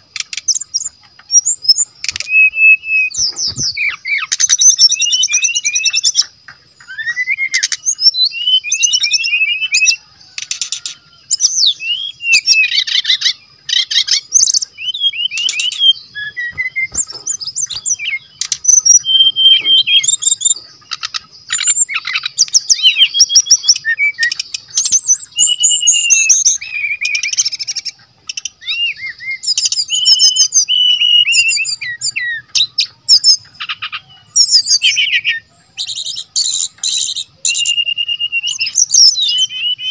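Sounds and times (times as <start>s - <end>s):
bird singing whistled song: 0.0s - 39.9s
bird clicking chatter: 0.1s - 2.4s, 16.5s - 22.9s.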